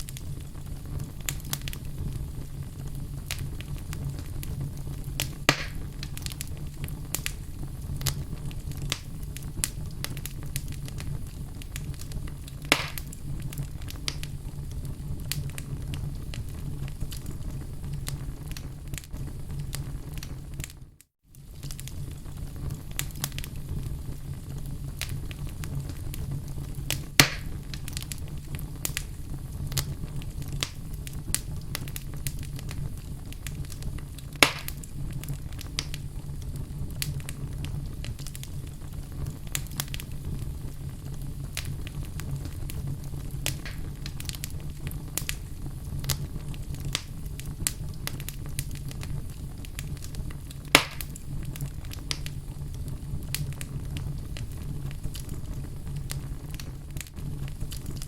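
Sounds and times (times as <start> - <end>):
wood fire burning: 0.0 - 58.0
loud sharp pops of logs: 5.5 - 5.8, 12.7 - 13.1, 27.2 - 27.6, 34.4 - 34.8, 50.8 - 51.1.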